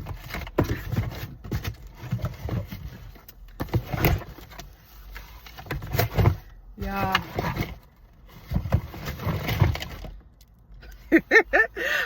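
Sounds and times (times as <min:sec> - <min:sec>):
cardboard box being rummaged: 0:05.3 - 0:10.2.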